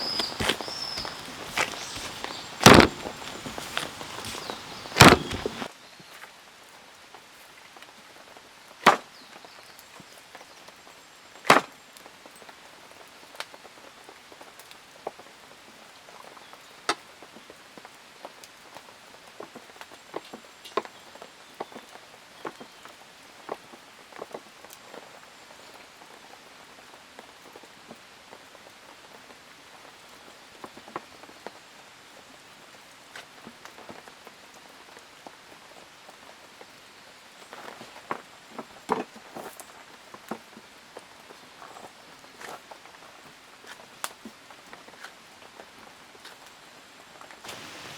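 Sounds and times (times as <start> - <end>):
rain falling: 0.0 - 5.7, 46.7 - 47.9.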